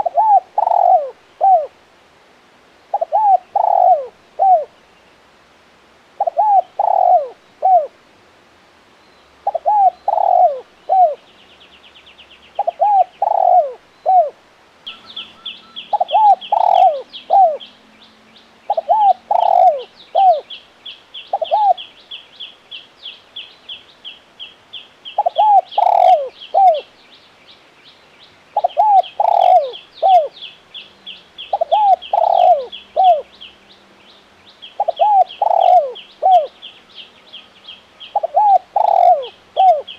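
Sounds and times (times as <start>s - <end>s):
dove cooing: 0.0s - 1.8s, 2.9s - 4.7s, 6.2s - 7.9s, 9.4s - 11.2s, 12.6s - 17.7s, 18.7s - 20.5s, 21.3s - 21.9s, 25.2s - 26.9s, 28.6s - 30.4s, 31.5s - 33.3s, 34.8s - 36.6s, 38.1s - 39.9s
fast high bird chirping: 14.9s - 17.6s.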